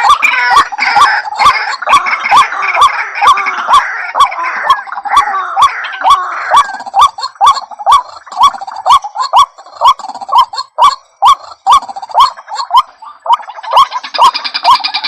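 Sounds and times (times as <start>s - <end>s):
harsh bird chatter: 0.0s - 15.0s
waterhen calling: 0.0s - 15.0s.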